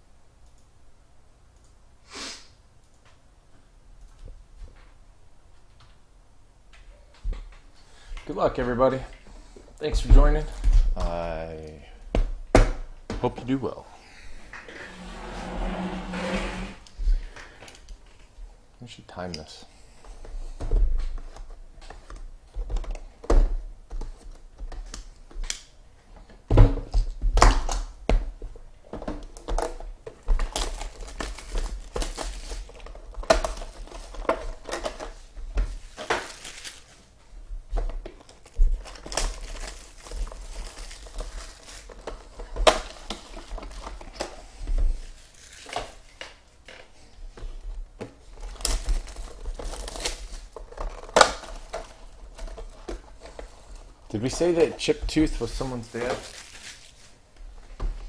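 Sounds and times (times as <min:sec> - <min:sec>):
plastic wrap crinkling and tearing: 0:29.4 - 0:37.1, 0:38.0 - 0:44.3, 0:44.9 - 0:46.3, 0:48.2 - 0:57.2.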